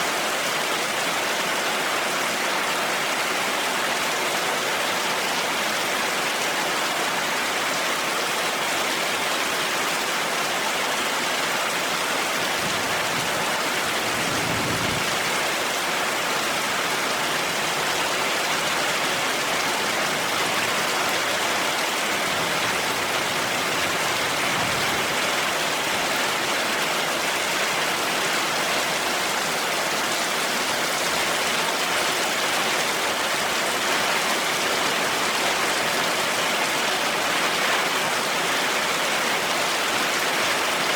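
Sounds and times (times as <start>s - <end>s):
heavy rain falling: 0.0s - 40.9s
distant thunder rumbles: 13.9s - 15.5s.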